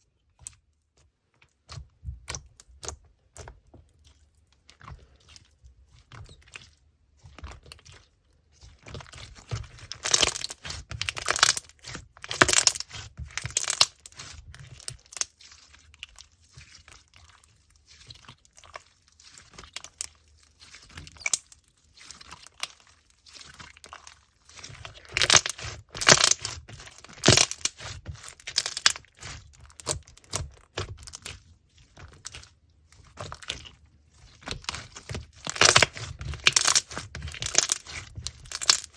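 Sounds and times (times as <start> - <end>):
slime squished by hand: 4.6 - 38.9
slime crackling and popping: 9.1 - 16.0, 18.8 - 31.5, 33.0 - 38.9.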